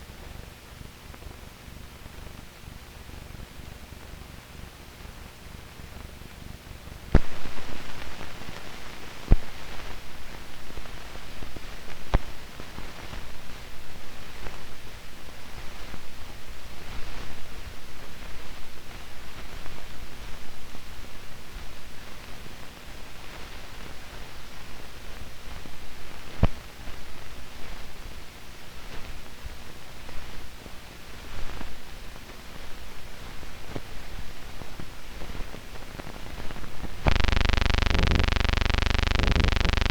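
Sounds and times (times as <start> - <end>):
film soundtrack hiss and crackle: 0.1 - 39.9
faint low hum: 37.0 - 39.9
sharp pops: 37.1 - 39.9.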